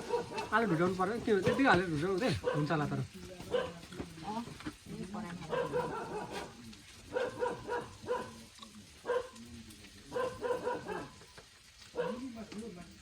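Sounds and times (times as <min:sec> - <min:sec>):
dog barking: 0:00.0 - 0:00.6, 0:02.3 - 0:02.8, 0:03.5 - 0:03.8, 0:05.4 - 0:09.4, 0:10.1 - 0:11.2, 0:11.9 - 0:12.3.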